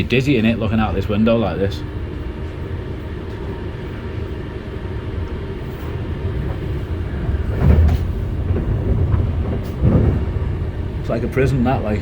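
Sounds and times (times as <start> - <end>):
train wheels rumbling on rails: 0.0 - 12.0
train thump: 5.2 - 12.0.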